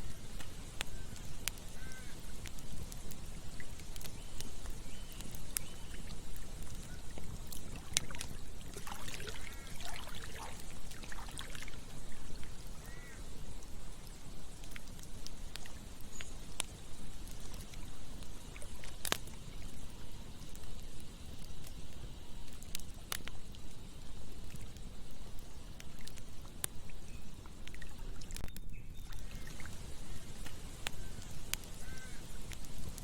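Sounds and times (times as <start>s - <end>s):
campfire crackling and popping: 0.0s - 33.0s
running water: 5.7s - 14.3s
water gurgling: 6.5s - 13.1s.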